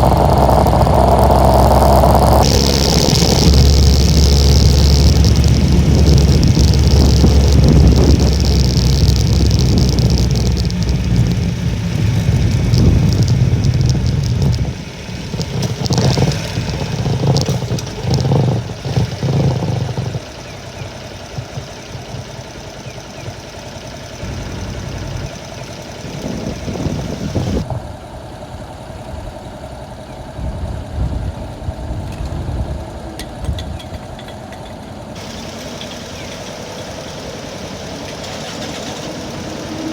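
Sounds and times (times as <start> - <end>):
wind buffeting microphone: 0.0 - 20.3, 26.0 - 27.7
small motorcycle engine running: 0.0 - 27.7, 35.2 - 39.9.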